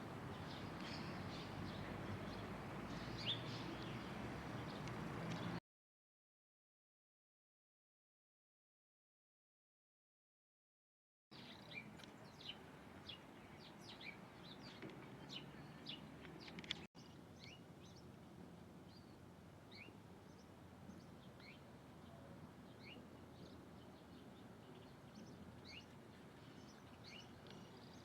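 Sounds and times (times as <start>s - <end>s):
faint background noise: 0.0s - 5.6s, 11.3s - 28.0s
birds chirping: 0.2s - 5.6s, 11.4s - 18.1s, 18.9s - 28.0s.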